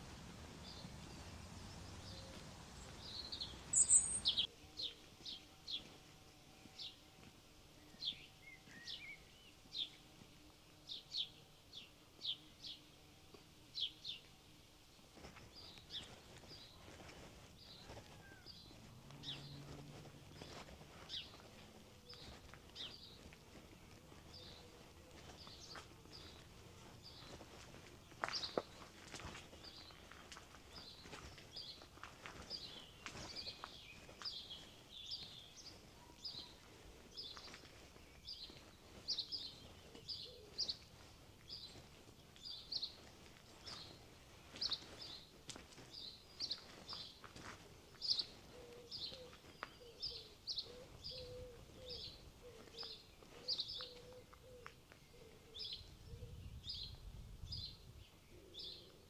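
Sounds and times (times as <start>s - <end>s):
footsteps: 0.0s - 4.5s, 15.2s - 40.1s
small bird chirping: 0.0s - 5.0s, 48.1s - 57.0s
faint outdoor background noise: 0.0s - 59.0s.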